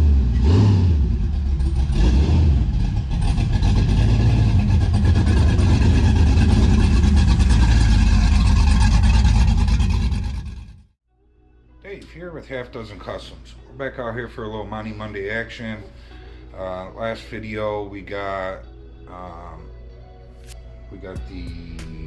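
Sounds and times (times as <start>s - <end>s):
car engine revving: 0.0s - 10.9s.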